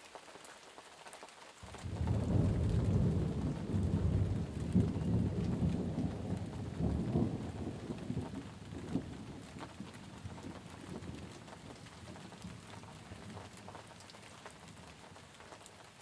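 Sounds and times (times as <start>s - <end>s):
steady rain: 0.0s - 16.0s
thunder rolling: 1.7s - 11.5s.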